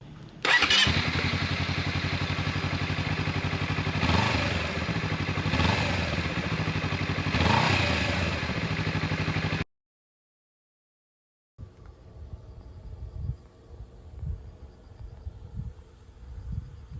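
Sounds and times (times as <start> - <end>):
motorcycle engine idling and revving: 0.0 - 9.7.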